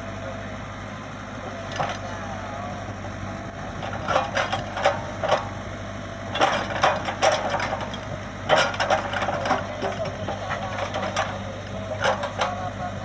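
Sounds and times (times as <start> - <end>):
excavator engine running: 0.0 - 13.0
irregular clanks and knocks: 3.8 - 5.6, 6.3 - 12.7.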